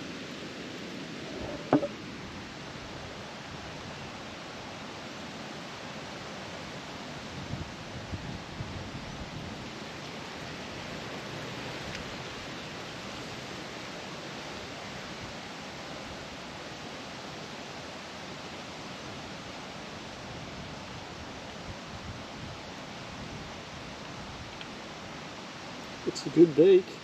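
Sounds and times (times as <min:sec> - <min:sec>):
wind blowing: 0:01.0 - 0:02.9.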